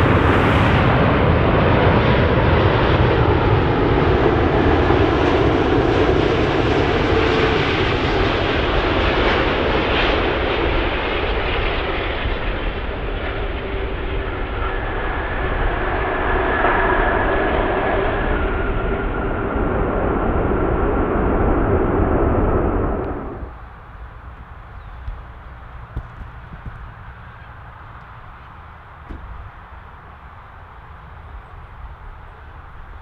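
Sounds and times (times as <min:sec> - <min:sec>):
airliner jet engines rushing: 0:00.0 - 0:33.0.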